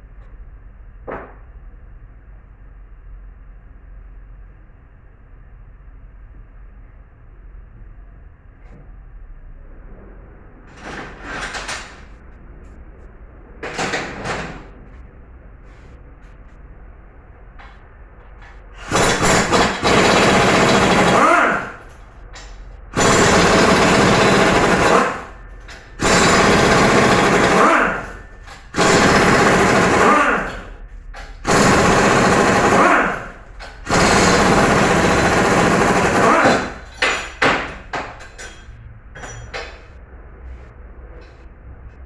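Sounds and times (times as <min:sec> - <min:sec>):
pneumatic impact wrench hammering: 0:18.4 - 0:38.4.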